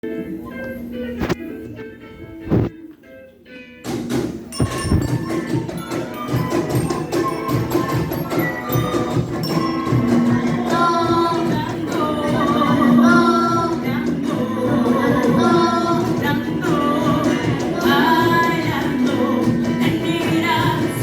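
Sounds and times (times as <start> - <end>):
upbeat music with percussion beat: 3.9 - 21.0.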